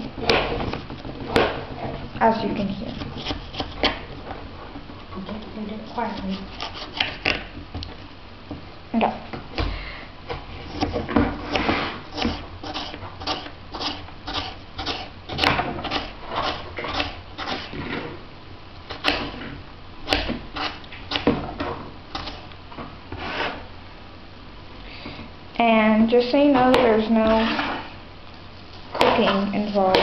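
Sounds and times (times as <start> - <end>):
knife chopping on cutting board: 10.7 - 17.7, 18.9 - 19.4, 20.1 - 21.4.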